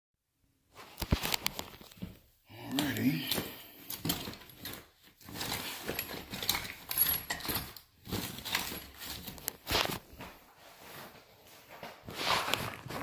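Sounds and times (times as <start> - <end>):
handling rustling: 0.7 - 13.0.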